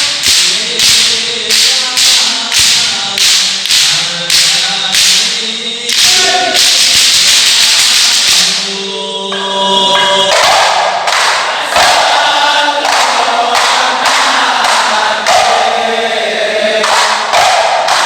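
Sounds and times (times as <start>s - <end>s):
frame drum strokes: 0.0s - 8.7s
group singing chant: 0.0s - 18.0s.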